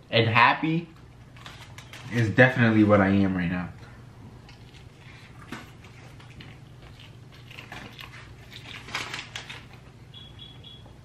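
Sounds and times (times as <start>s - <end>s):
person chewing sandwich: 4.3s - 10.2s.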